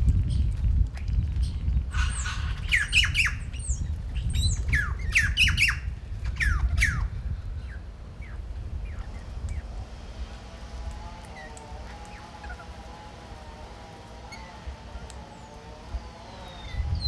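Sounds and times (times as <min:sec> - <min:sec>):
steady low rumble: 0:00.0 - 0:14.0
short downward-sliding bird calls: 0:01.9 - 0:07.1, 0:08.2 - 0:17.0
birds squawking: 0:01.9 - 0:17.0.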